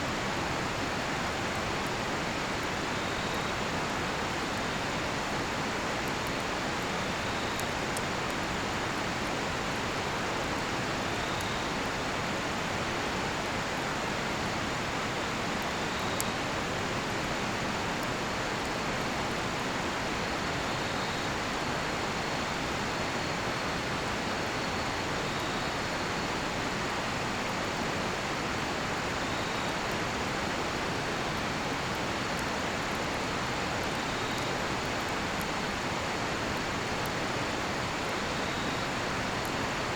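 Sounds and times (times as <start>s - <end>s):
campfire crackling and popping: 0.1s - 20.5s, 26.8s - 38.3s
faint insect chirps: 29.2s - 29.8s, 33.3s - 35.0s, 38.0s - 39.2s.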